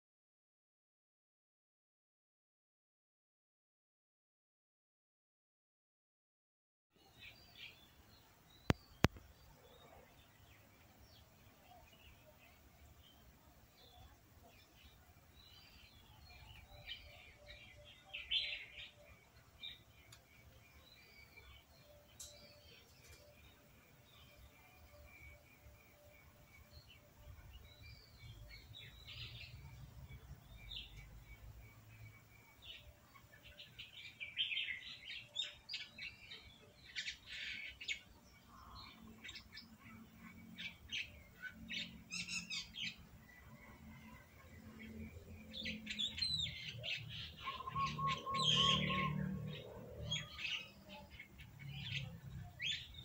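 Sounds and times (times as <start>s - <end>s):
birds chirping: 7.0s - 53.0s
bird trill: 44.8s - 53.0s.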